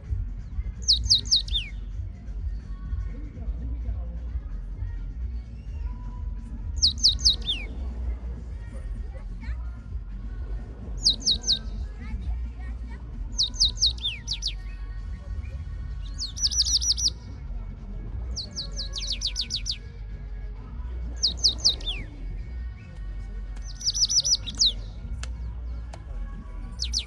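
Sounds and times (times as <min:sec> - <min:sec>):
steady low rumble: 0:00.0 - 0:27.0
songbird chirping: 0:00.8 - 0:01.9, 0:06.7 - 0:07.9, 0:11.0 - 0:12.0, 0:13.2 - 0:17.3, 0:18.3 - 0:19.9, 0:21.1 - 0:27.0.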